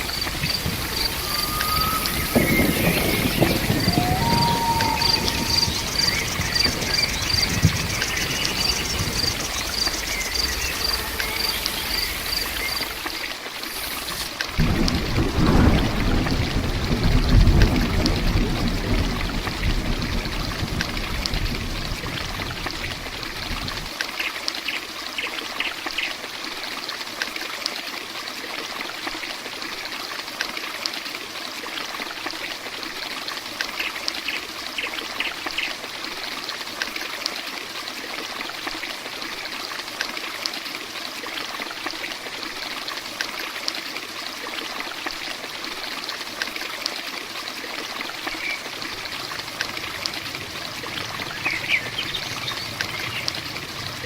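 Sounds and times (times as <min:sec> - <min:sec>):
low rumble: 0:00.0 - 0:13.1, 0:48.6 - 0:54.0
heavy rain: 0:00.0 - 0:24.0, 0:32.0 - 0:54.0.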